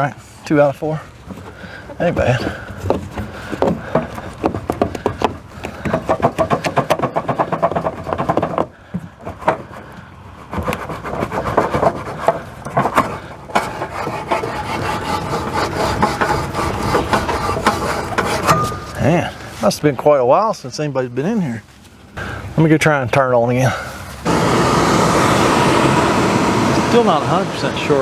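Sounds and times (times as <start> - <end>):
metal cover scraping and rattling: 11.5 - 19.6.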